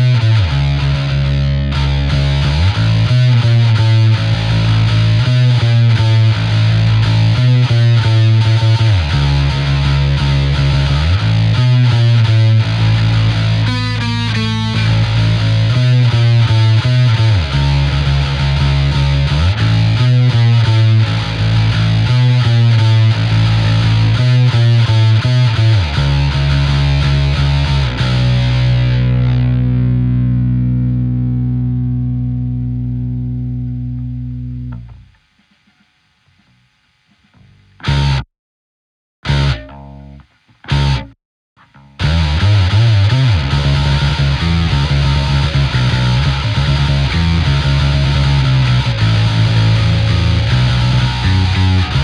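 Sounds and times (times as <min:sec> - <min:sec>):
bass guitar playing: 0:00.0 - 0:35.2, 0:37.4 - 0:38.2, 0:39.2 - 0:52.0
faint string and handling noise: 0:33.9 - 0:37.8, 0:39.3 - 0:42.0.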